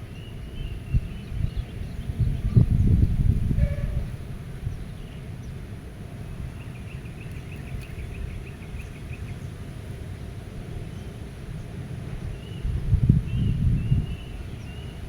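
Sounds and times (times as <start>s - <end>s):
wind blowing: 0.7s - 4.9s.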